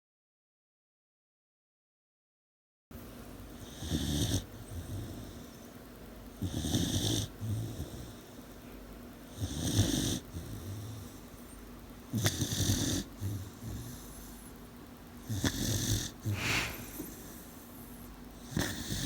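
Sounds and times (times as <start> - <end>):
puppy snoring: 3.5 - 8.6, 9.2 - 14.6, 15.2 - 19.0
soft low breath: 16.2 - 18.9.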